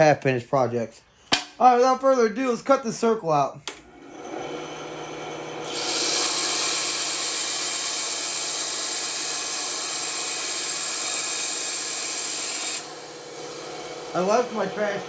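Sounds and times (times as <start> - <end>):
band saw motor hum: 3.7 - 15.0
saw blade cutting wood: 4.2 - 15.0.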